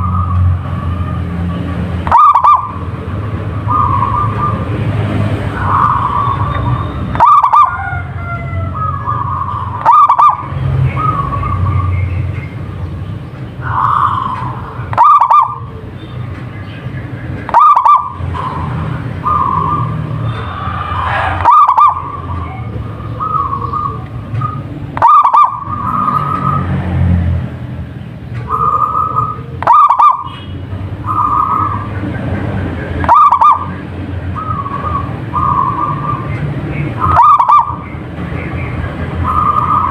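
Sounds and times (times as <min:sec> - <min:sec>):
dove cooing: 0:02.0 - 0:03.0, 0:03.6 - 0:04.7, 0:05.5 - 0:11.9, 0:13.6 - 0:16.0, 0:17.5 - 0:26.7, 0:28.4 - 0:30.3, 0:31.0 - 0:32.0, 0:33.0 - 0:33.8, 0:34.4 - 0:37.9, 0:39.2 - 0:39.9
faint drawn-out bird calls: 0:05.5 - 0:12.6, 0:13.6 - 0:26.8.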